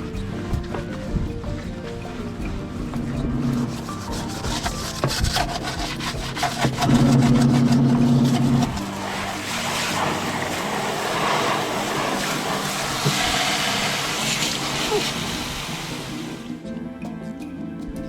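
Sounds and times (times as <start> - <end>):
brush scrubbing: 0.0 - 16.6
steady hiss: 7.7 - 16.6.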